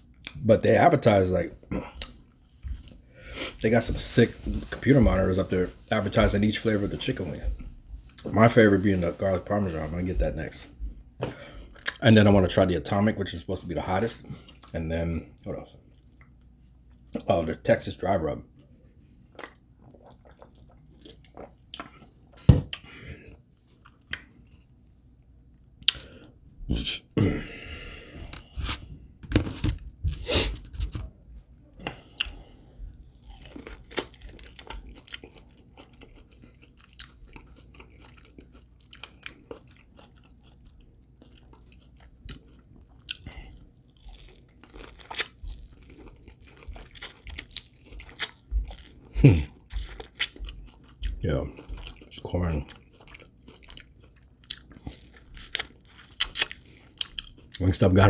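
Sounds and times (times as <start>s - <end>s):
person chewing crunchy food: 19.3s - 24.8s, 27.9s - 57.6s.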